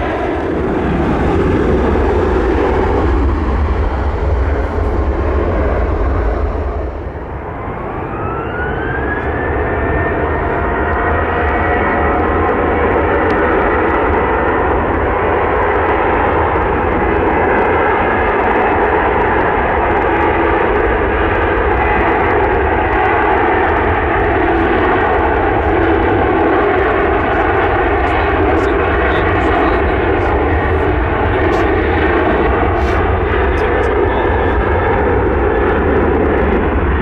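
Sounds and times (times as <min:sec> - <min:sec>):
jet engines running: 0:00.0 - 0:37.0.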